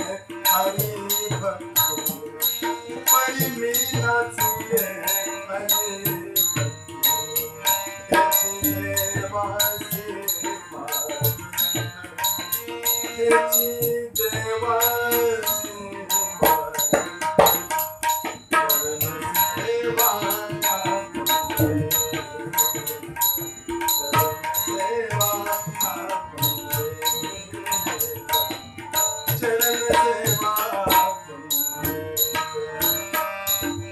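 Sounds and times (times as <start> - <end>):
tabla rhythm: 0.0 - 33.9.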